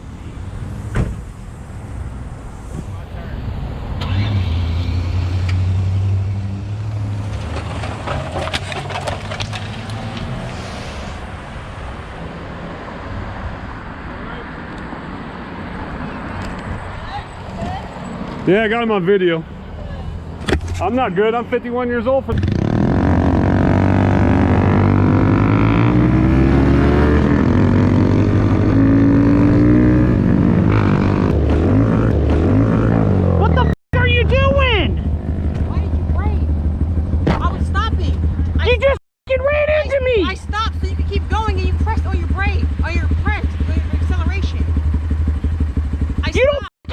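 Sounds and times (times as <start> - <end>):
motorcycle engine under throttle: 22.3 - 33.5, 41.0 - 46.7.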